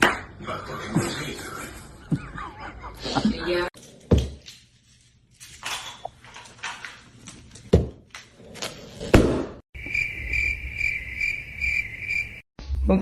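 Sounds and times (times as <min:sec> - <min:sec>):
pulsing high-pitched chirping: 0:09.8 - 0:12.4.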